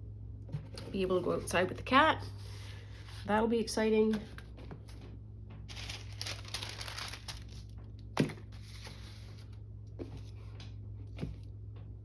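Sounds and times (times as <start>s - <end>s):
steady low hum: 0.0s - 12.0s
paper rustling and crinkling: 5.7s - 10.4s.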